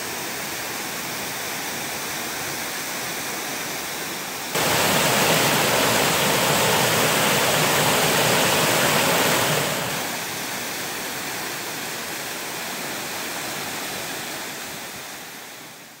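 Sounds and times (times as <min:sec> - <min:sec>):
waterfall rushing: 0:04.6 - 0:10.5.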